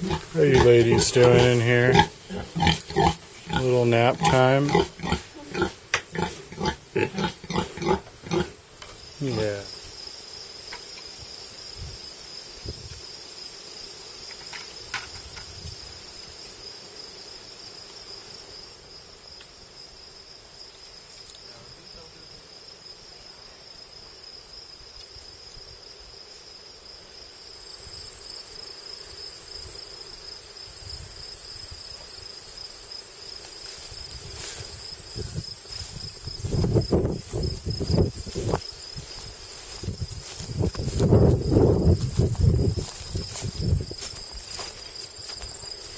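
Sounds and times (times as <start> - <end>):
rustling near microphone: 0.0 - 7.3, 33.3 - 45.9
high-pitched insect trill: 0.0 - 45.9.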